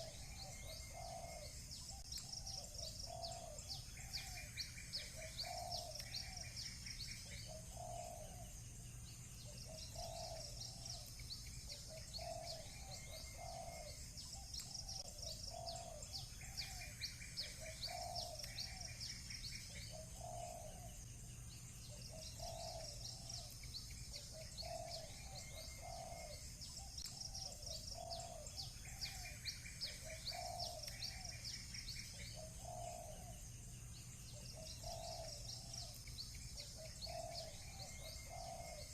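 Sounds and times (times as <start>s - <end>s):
dove cooing: 0.0s - 1.6s, 2.3s - 8.5s, 9.4s - 11.1s, 11.7s - 21.0s, 21.9s - 23.5s, 24.1s - 26.4s, 27.1s - 33.4s, 34.3s - 36.0s, 36.6s - 38.9s
small birds chirping: 0.0s - 38.9s.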